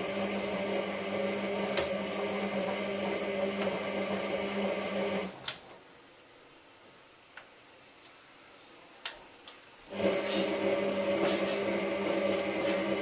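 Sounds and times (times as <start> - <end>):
washing machine humming: 0.0 - 5.4, 9.9 - 13.0.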